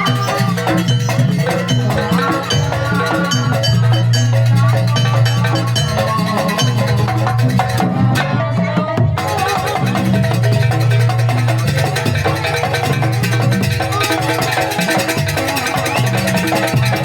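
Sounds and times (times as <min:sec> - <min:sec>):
tuned metal percussion: 0:00.0 - 0:08.5, 0:09.2 - 0:17.0
drums: 0:00.0 - 0:17.0.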